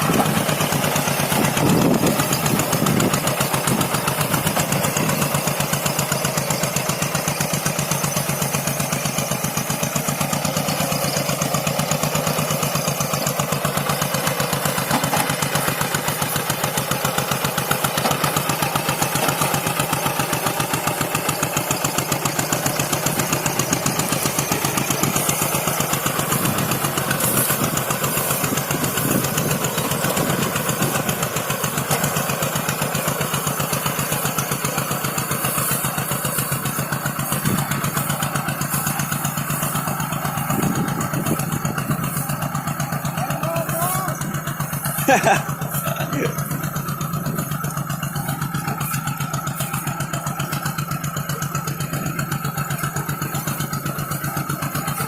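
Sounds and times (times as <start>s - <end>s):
tractor engine chugging: 0.0s - 55.0s.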